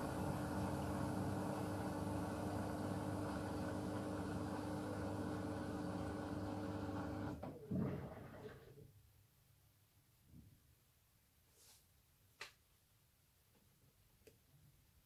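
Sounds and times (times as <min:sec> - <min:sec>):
washing machine motor whine: 0:00.0 - 0:08.4.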